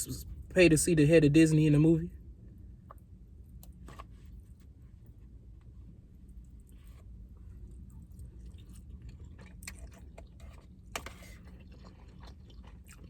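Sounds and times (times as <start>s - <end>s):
person chewing food: 6.3s - 13.0s.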